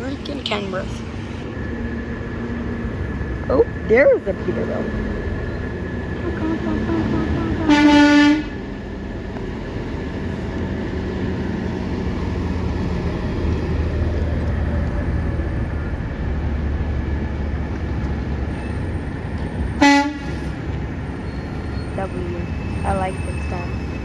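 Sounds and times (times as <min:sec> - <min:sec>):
garbage truck engine droning: 0:00.0 - 0:24.0
truck horn toot: 0:06.2 - 0:08.6, 0:19.8 - 0:20.5.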